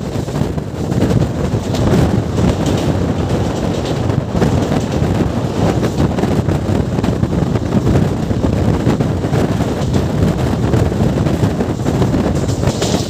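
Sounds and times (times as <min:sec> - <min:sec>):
train wheels rumbling on rails: 0:00.0 - 0:13.0
wind buffeting microphone: 0:00.0 - 0:13.0.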